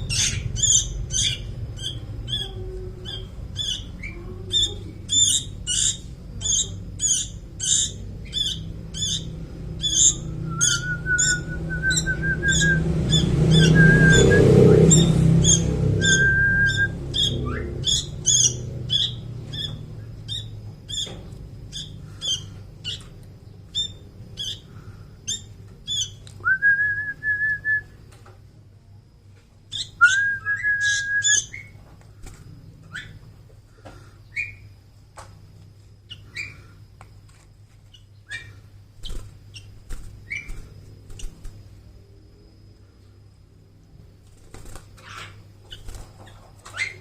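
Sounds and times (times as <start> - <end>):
young bird begging chirps: 0.0 - 21.1
held level whistles: 10.1 - 15.0, 16.0 - 17.0, 26.4 - 28.0, 29.9 - 31.7.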